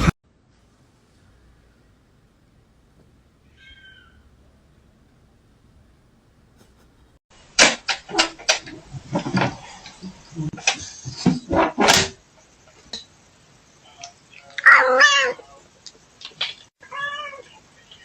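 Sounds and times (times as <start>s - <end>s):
irregular knocks and clatter: 7.6s - 12.1s.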